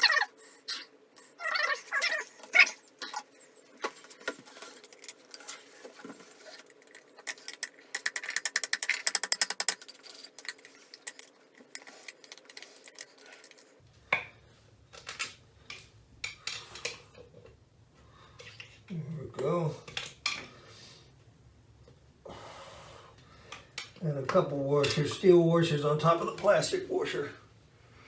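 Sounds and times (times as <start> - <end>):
light metal clicks and clinks: 6.7 - 14.2.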